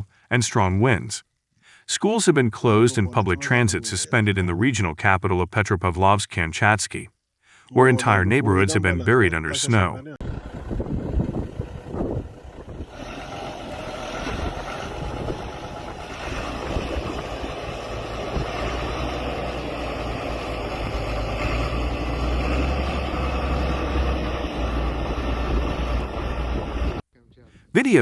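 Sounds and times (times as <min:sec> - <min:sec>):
vehicle engine rumbling: 0:07.0 - 0:28.0.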